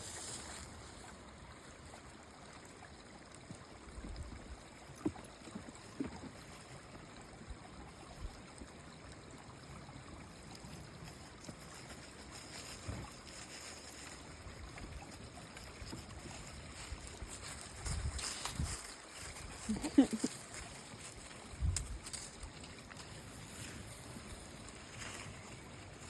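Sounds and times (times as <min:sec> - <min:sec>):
stream of water trickling: 0:00.0 - 0:26.0.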